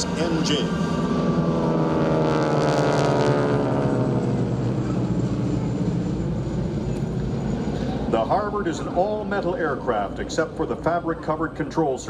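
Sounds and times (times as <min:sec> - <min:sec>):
propeller aircraft flying past: 0:00.0 - 0:12.0.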